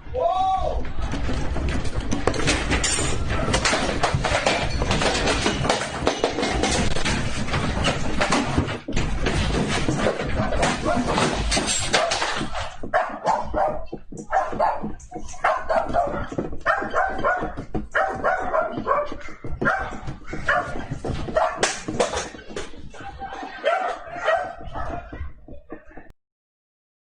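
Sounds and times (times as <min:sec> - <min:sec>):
voices: 0:13.3 - 0:26.1.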